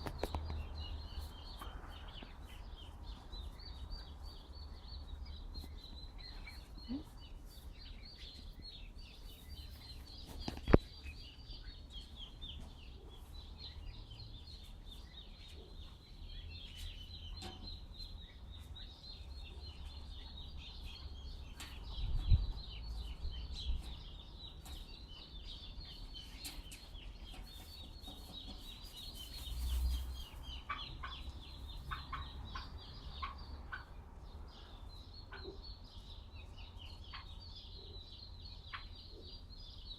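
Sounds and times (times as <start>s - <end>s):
small birds chirping: 0.0s - 39.9s
wind rumble on microphone: 21.8s - 23.9s.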